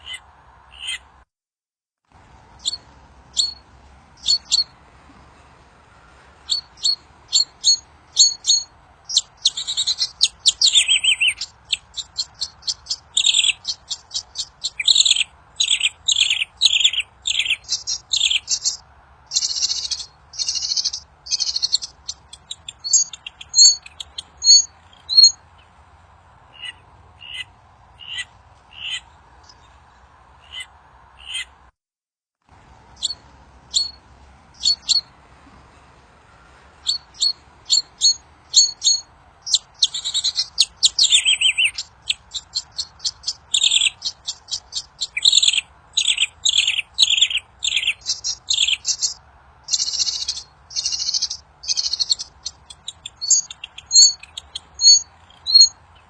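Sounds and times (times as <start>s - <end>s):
faint steady hiss: 2.1s - 31.7s, 32.4s - 56.0s
songbird high chirps: 2.5s - 4.8s, 6.4s - 25.8s, 32.9s - 56.0s.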